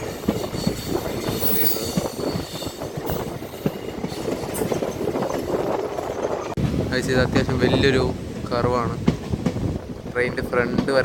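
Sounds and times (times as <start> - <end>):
high wheel squeal: 0.0 - 5.4
train wheels clattering on track: 0.0 - 7.6, 8.3 - 11.0.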